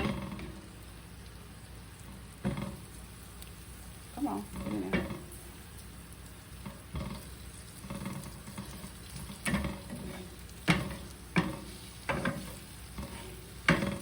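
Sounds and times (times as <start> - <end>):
asparagus sizzling in a pan: 0.0 - 14.0
utensil knocking against pan: 9.4 - 14.0.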